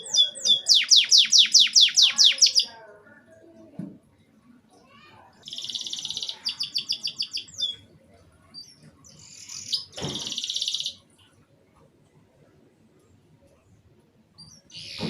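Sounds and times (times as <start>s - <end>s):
canary singing trills and chirps: 0.0s - 2.9s, 5.4s - 7.9s, 8.5s - 11.0s, 14.4s - 15.0s.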